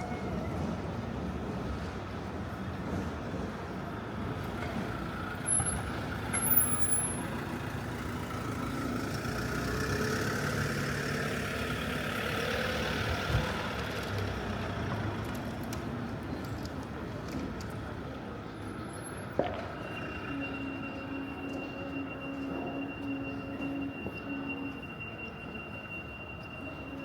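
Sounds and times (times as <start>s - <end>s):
heavy vehicle engine passing: 4.7s - 15.6s.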